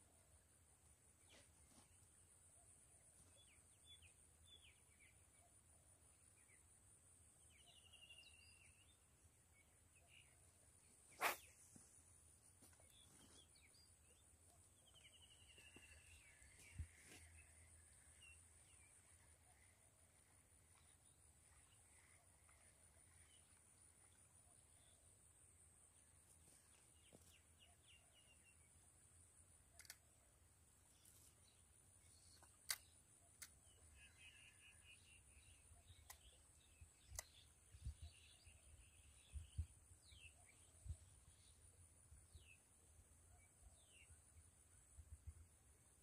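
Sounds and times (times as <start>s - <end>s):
faint bird chirps: 7.4s - 28.8s, 30.8s - 45.4s
sharp clicks: 29.7s - 30.2s, 32.3s - 33.6s, 35.9s - 36.4s, 37.0s - 37.5s.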